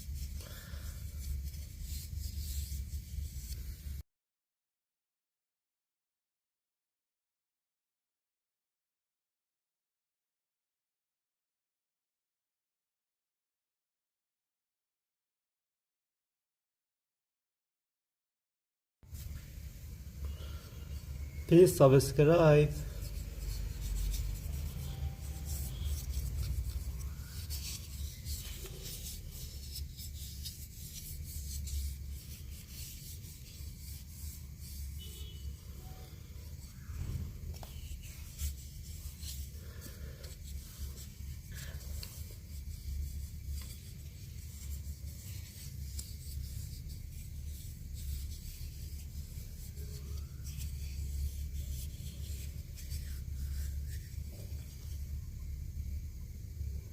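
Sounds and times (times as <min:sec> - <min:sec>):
scratchy rubbing on wooden spoon: 0:00.0 - 0:04.0, 0:20.3 - 0:55.2
low steady hum: 0:19.1 - 0:56.9.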